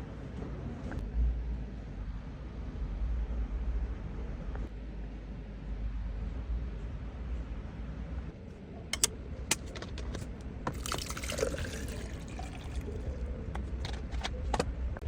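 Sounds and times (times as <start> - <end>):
liquid pouring and trickling: 10.2 - 14.2.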